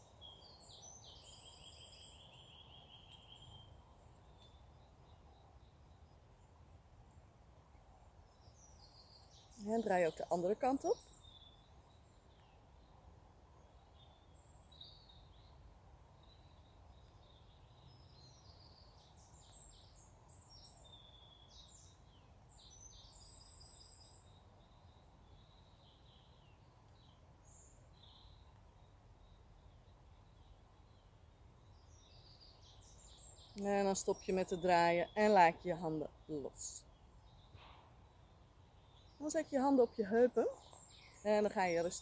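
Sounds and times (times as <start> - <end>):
faint bird chirps: 0.0 - 42.0.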